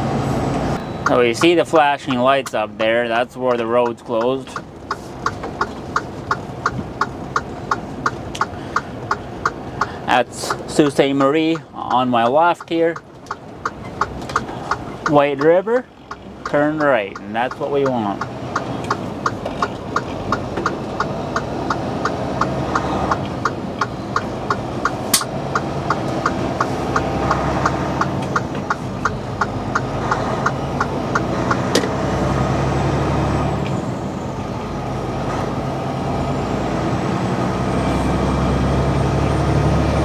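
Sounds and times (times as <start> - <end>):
diesel engine running: 0.0 - 11.6, 12.3 - 40.0
turn signal clicking: 0.8 - 32.2.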